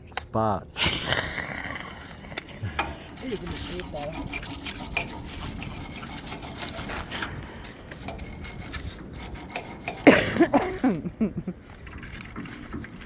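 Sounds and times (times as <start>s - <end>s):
rubbing and scraping: 2.4s - 13.0s.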